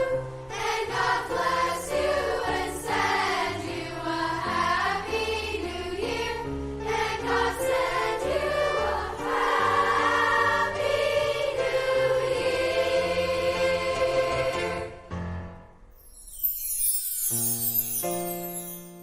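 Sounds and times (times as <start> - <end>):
choir singing: 0.0 - 15.2
instrumental accompaniment: 13.7 - 19.0.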